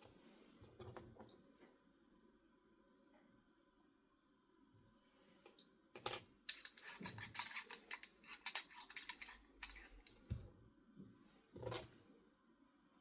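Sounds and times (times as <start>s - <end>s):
kitchenware clinking and clattering: 6.1s - 10.3s.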